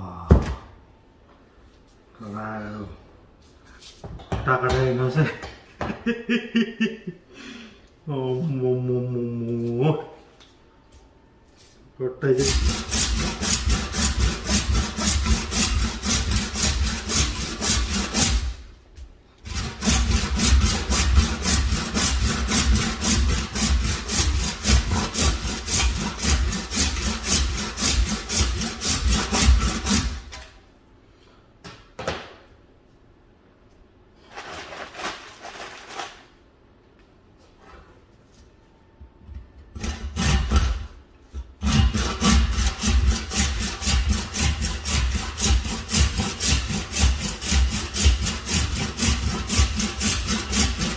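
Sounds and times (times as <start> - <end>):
saw cutting through bone: 12.4 - 18.5, 19.4 - 30.2, 39.8 - 40.8, 41.6 - 50.9.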